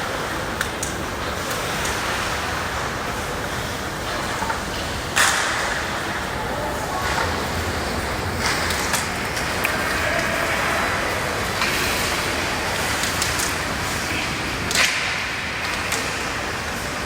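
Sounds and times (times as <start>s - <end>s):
hockey sticks striking puck: 5.2s - 5.8s, 11.6s - 16.3s.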